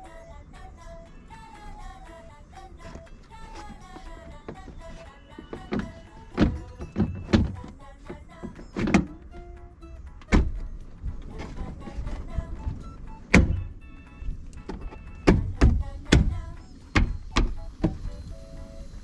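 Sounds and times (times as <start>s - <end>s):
light background music: 0.0s - 19.0s
sharp knocks and clicks: 14.5s - 18.0s.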